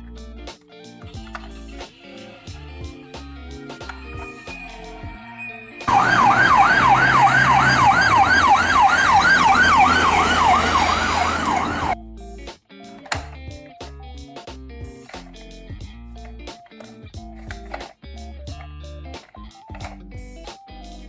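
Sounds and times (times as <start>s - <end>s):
quiet background music: 0.0s - 21.0s
ambulance siren yelping: 5.2s - 12.0s.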